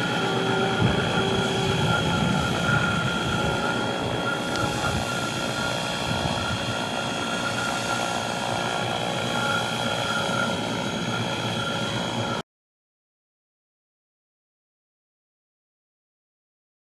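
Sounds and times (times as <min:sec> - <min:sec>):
electric motor whine: 0:00.0 - 0:12.4
helicopter rotor noise: 0:00.0 - 0:12.4.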